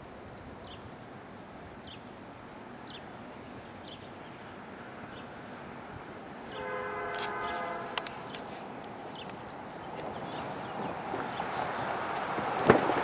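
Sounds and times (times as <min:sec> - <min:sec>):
steady outdoor hiss: 0:00.0 - 0:13.0
bird chirping: 0:02.8 - 0:05.4, 0:06.5 - 0:12.0.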